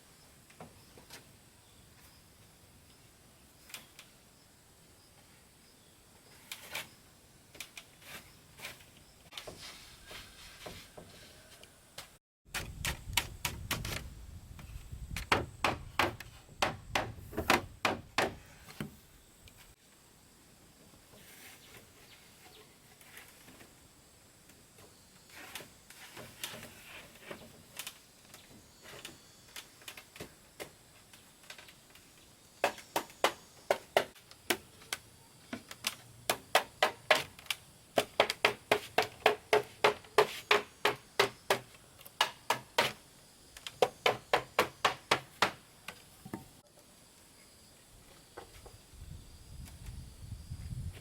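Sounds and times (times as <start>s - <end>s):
hand tool striking wood: 15.2s - 19.0s, 32.6s - 34.7s, 36.3s - 37.4s, 38.0s - 43.0s, 43.7s - 45.6s.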